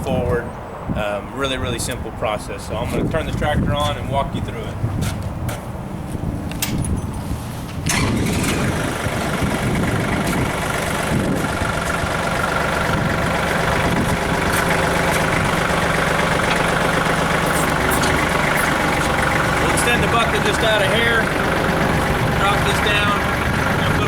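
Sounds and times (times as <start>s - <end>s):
tractor diesel engine starting: 6.7s - 24.0s.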